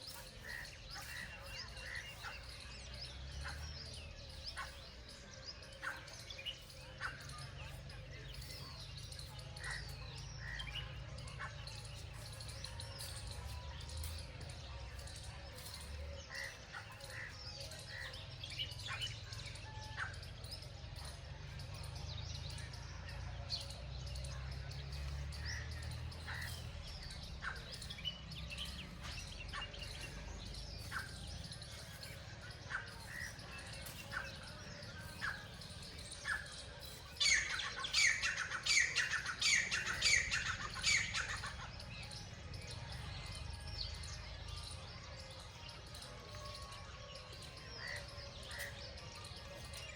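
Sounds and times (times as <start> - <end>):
birds chirping: 0.0 - 49.9.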